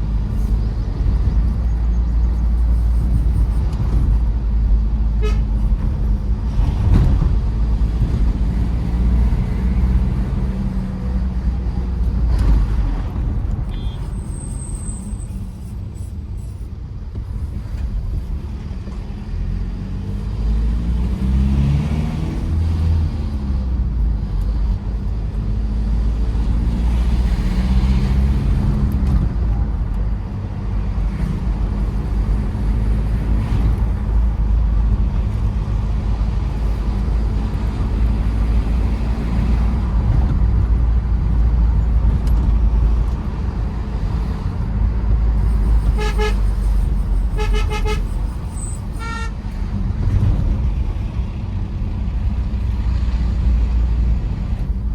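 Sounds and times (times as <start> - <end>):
diesel engine: 0.0 - 54.9
road noise: 0.0 - 54.9
car horn toots: 5.2 - 5.5, 45.8 - 46.6, 47.3 - 48.2, 48.9 - 49.4.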